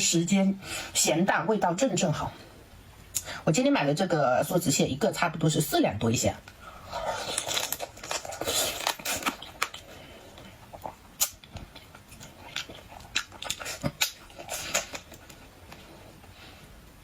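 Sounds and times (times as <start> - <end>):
wet chewing: 6.9 - 16.4
crab shell crunching: 7.0 - 15.8.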